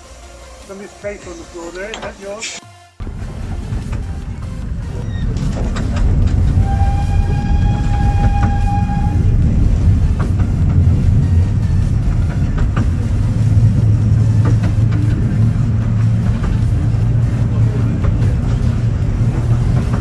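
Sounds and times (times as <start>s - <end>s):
train rumble: 0.0s - 20.0s
wheels clicking over track: 4.8s - 6.6s, 7.9s - 20.0s
whistle-like tone: 6.6s - 9.2s.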